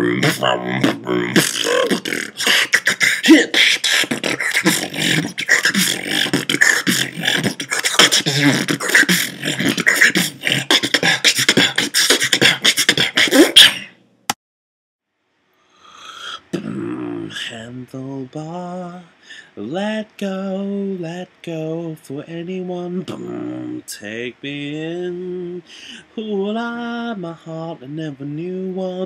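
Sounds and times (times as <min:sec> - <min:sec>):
beatboxing: 0:00.0 - 0:14.0, 0:16.2 - 0:17.7.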